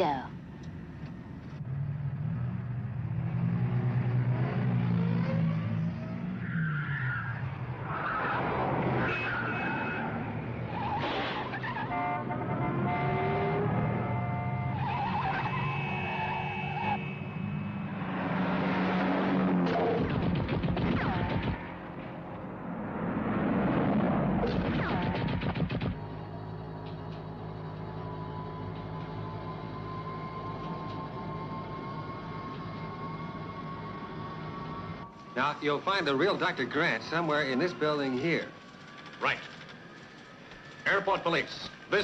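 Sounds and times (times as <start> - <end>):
car skid: 6.3 - 12.3, 14.8 - 17.2
falling whine: 13.8 - 42.0.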